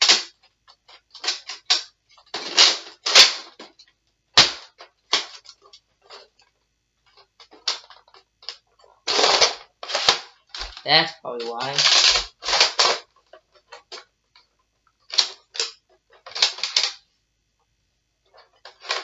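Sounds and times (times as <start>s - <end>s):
plastic rattling scrapes: 0.0s - 17.1s, 18.3s - 19.0s
plastic toy blaster clicking: 15.1s - 17.0s.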